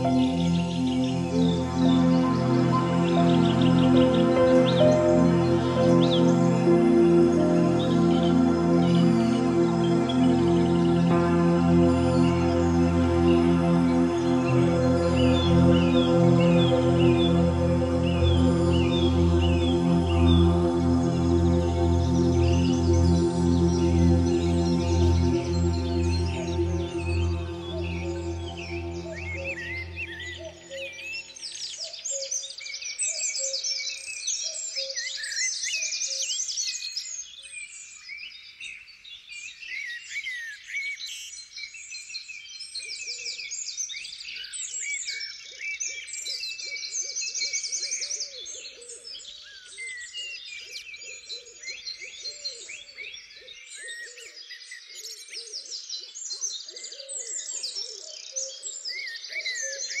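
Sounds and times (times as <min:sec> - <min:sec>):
low hooting: 0:00.0 - 0:30.6
songbirds chirping and trilling: 0:00.0 - 0:30.6.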